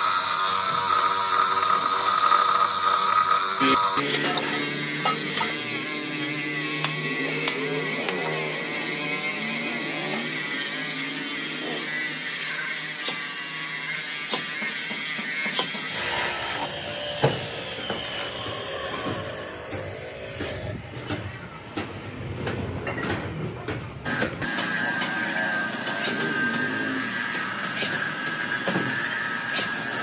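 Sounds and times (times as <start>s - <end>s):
workshop machinery running: 0.0s - 30.0s.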